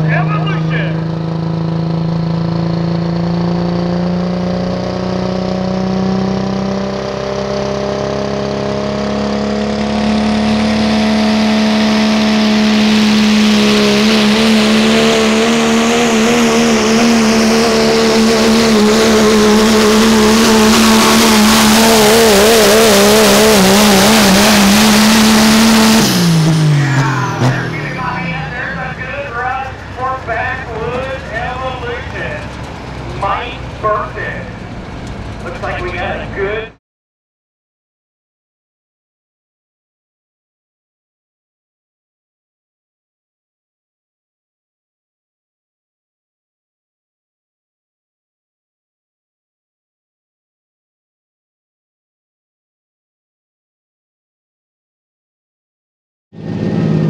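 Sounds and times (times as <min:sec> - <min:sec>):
truck engine revving under load: 0:00.0 - 0:36.8, 0:56.4 - 0:57.0.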